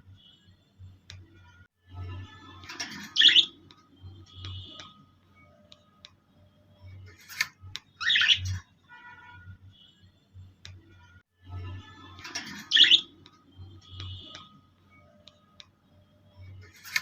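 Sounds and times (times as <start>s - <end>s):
birds chirping: 2.8s - 4.9s, 7.9s - 8.6s, 12.3s - 14.4s
birds squawking: 3.0s - 3.6s, 8.0s - 8.6s, 12.3s - 13.1s.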